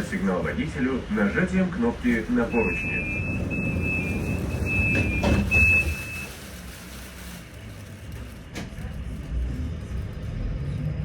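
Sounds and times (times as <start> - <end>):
tram rumble: 0.0 - 11.0
electronic beeps: 2.5 - 6.2.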